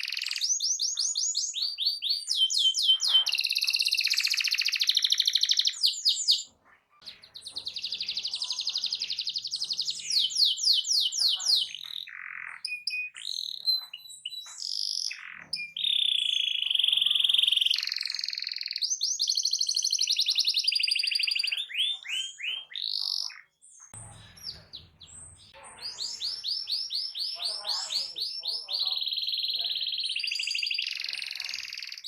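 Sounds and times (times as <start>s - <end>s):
canary singing trills: 0.0s - 32.0s.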